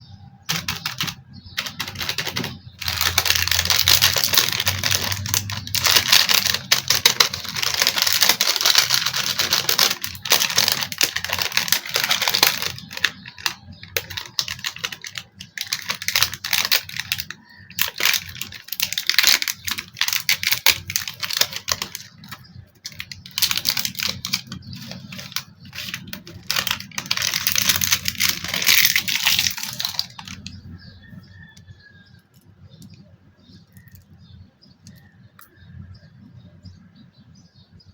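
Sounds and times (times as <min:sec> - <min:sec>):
packaging crackling and rustling: 0:00.5 - 0:30.8.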